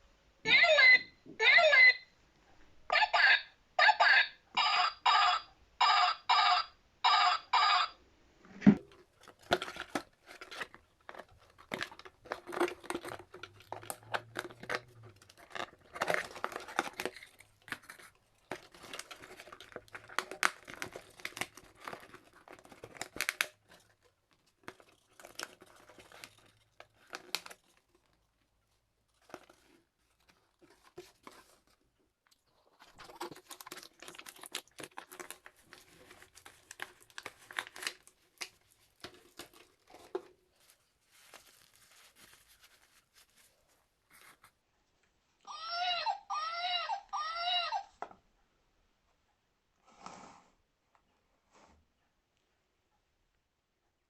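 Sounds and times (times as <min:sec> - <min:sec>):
toy electronic sound bursts: 0:03.2 - 0:08.0
plastic packaging crinkling and tearing: 0:08.8 - 0:44.5.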